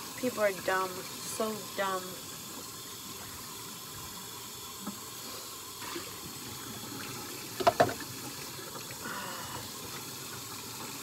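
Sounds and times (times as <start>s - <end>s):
tap running into a sink: 7.0s - 8.5s.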